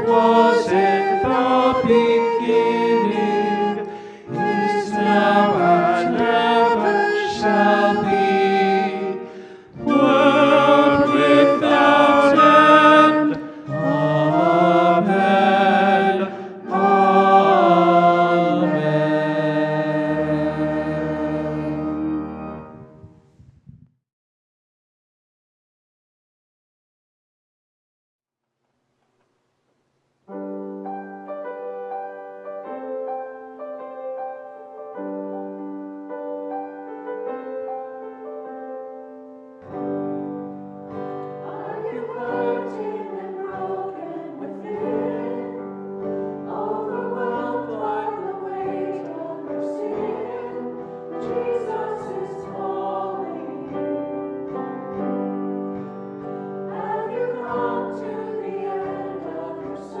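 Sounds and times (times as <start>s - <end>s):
choir singing a hymn: 0.0s - 23.1s, 39.6s - 60.0s
keyboard chords: 0.0s - 23.2s, 30.3s - 60.0s.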